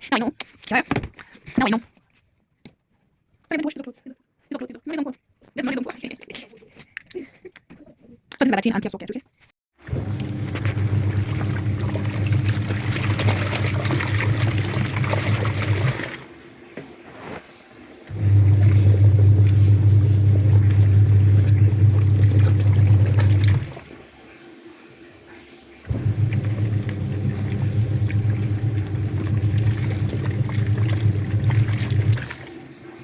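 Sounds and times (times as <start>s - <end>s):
water rushing into machine: 9.8s - 16.7s, 17.7s - 33.0s
washing machine hum: 9.8s - 33.0s.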